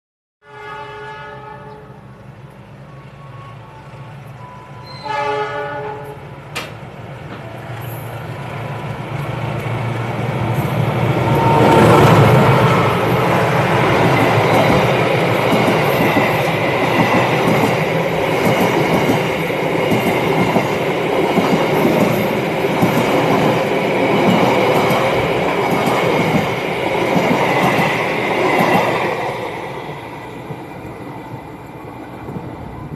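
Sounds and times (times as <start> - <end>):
train horn: 0.4 - 2.1, 4.4 - 6.3.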